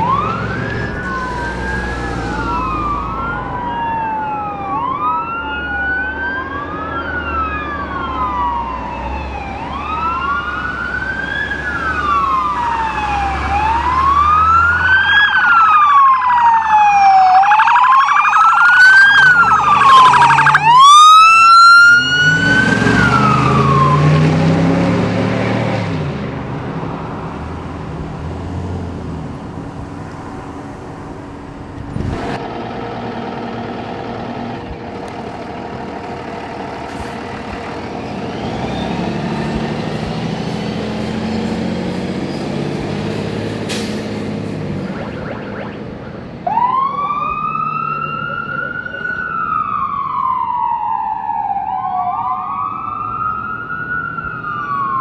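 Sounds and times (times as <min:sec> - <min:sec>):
fast-pulsing siren tone: 0:00.0 - 0:08.7, 0:12.0 - 0:24.1, 0:44.7 - 0:49.5
vehicle engine rumbling: 0:00.0 - 0:15.2, 0:16.7 - 0:25.0, 0:26.0 - 0:50.0
electronic siren wailing: 0:00.0 - 0:24.3, 0:44.7 - 0:52.9.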